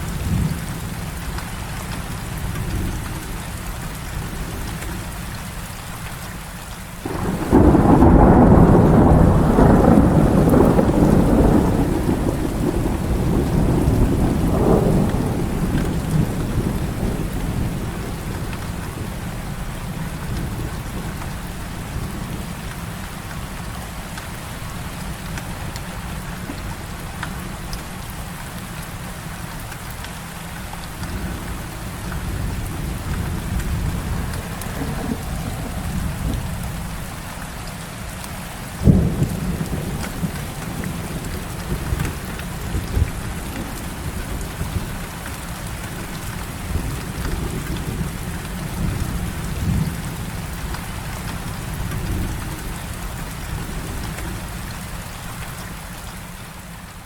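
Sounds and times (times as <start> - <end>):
heavy rain falling: 0.0 - 57.0
thunder rumbling: 7.0 - 22.6, 30.9 - 37.5, 38.8 - 55.5.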